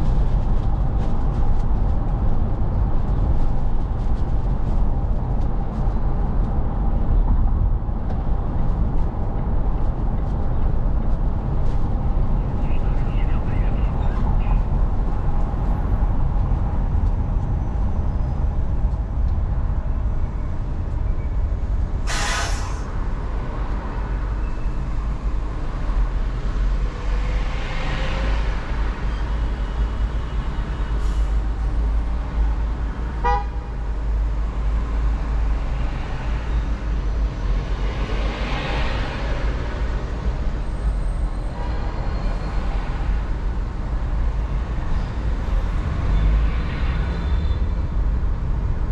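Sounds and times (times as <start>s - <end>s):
car road and engine rumble: 0.0s - 48.9s
car horn toots: 33.2s - 33.7s.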